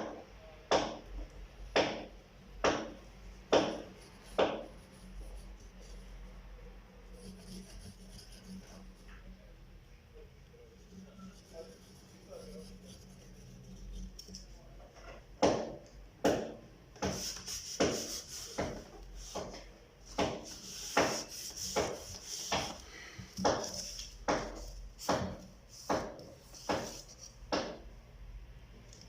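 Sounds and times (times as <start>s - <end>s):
hand tool scraping wood: 17.0s - 27.8s.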